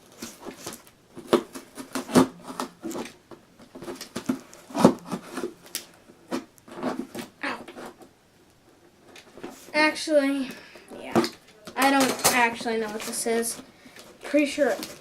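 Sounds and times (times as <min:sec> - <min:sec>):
cardboard box rustling and scraping: 0:03.7 - 0:05.6.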